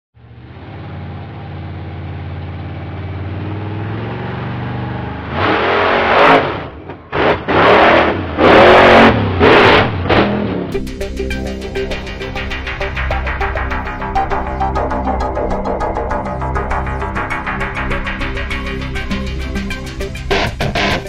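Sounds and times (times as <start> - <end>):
monster truck engine revving: 0.2 - 10.8, 15.6 - 21.0.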